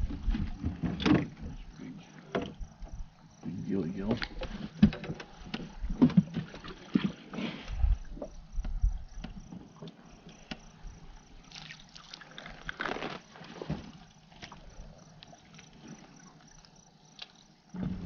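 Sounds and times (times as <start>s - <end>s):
water splashing and trickling: 5.4s - 7.4s, 11.2s - 18.0s.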